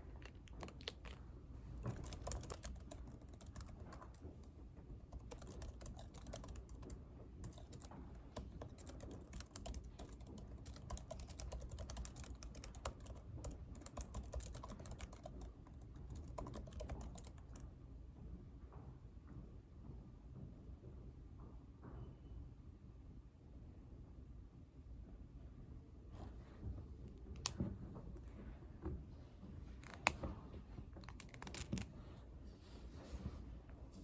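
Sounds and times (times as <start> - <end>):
keyboard typing: 0.2 - 4.5, 5.1 - 17.6, 31.0 - 31.9.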